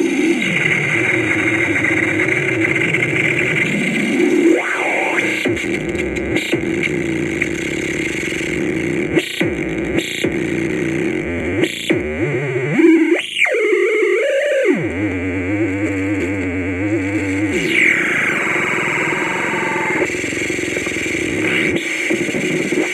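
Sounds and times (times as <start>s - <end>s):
synthesizer static and noise: 0.0s - 22.9s.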